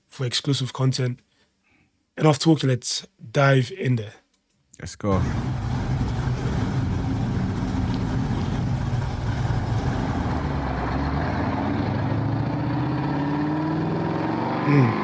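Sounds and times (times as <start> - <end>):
car engine idling: 5.1 - 12.3.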